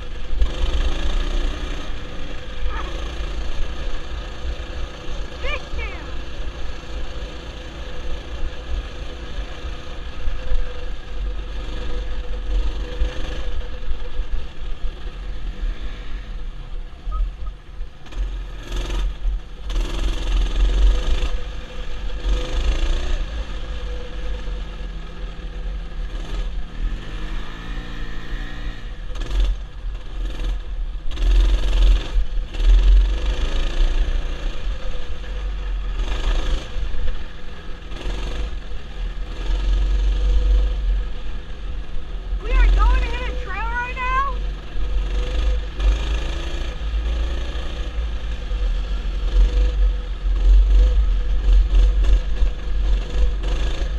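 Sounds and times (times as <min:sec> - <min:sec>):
small engine running: 0:00.0 - 0:16.3.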